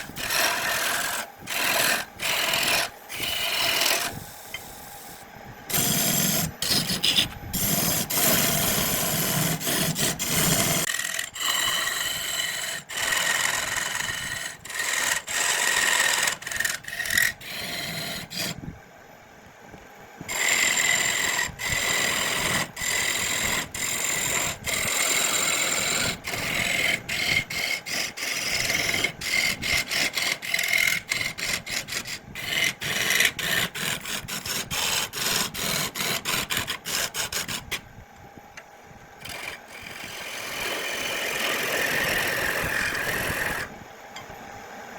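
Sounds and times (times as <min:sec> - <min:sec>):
tool scraping wood: 0:00.0 - 0:04.7, 0:05.7 - 0:18.6, 0:20.3 - 0:37.8, 0:39.2 - 0:43.7
steady high whine: 0:00.0 - 0:14.8.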